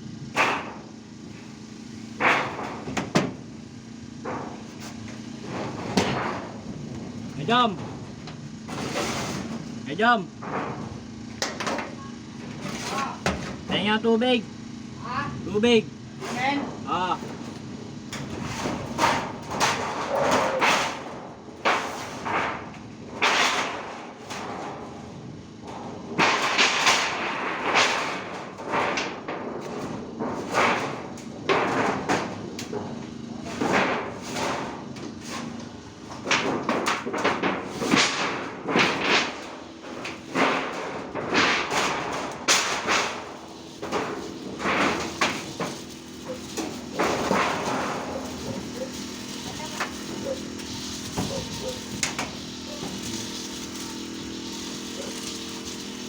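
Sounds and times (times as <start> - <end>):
irregular thumps and clattering knocks: 2.2 - 3.5, 10.4 - 13.8.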